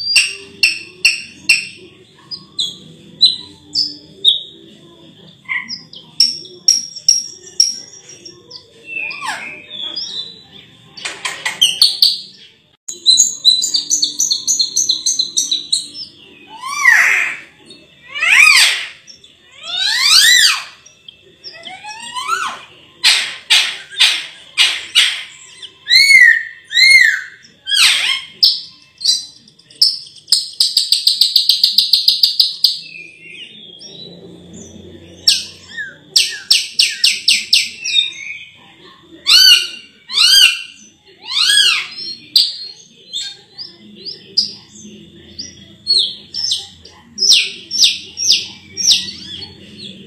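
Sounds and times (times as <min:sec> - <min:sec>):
myna singing whistles and rasps: 0:11.6 - 0:34.2, 0:39.2 - 0:44.9.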